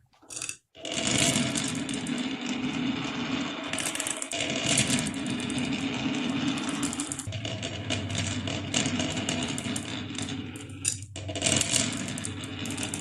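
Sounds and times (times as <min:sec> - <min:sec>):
marbles rattling down wooden run: 0:00.3 - 0:02.9, 0:03.7 - 0:07.3, 0:08.5 - 0:13.0.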